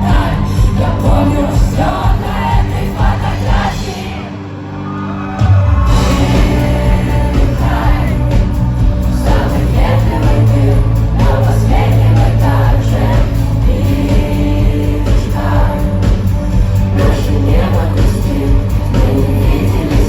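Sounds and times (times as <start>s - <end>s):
person singing: 0.0s - 4.4s, 5.1s - 20.0s
live rock band playing: 5.0s - 20.0s.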